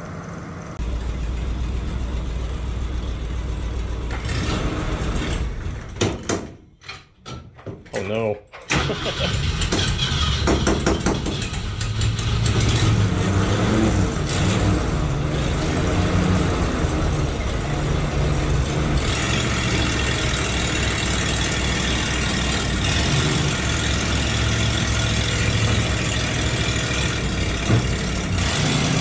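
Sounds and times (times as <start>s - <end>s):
engine idling: 0.0s - 5.9s, 8.8s - 29.0s.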